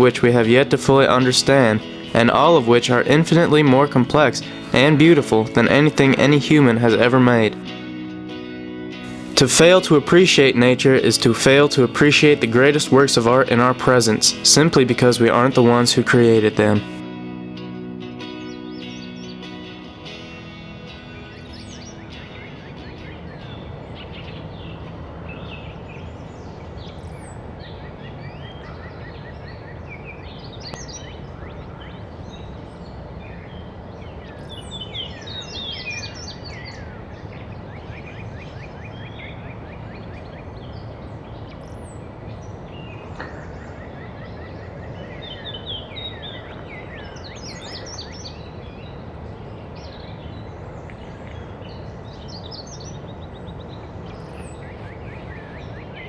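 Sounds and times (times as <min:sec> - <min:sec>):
wild birds singing and calling: 0:20.9 - 0:56.0.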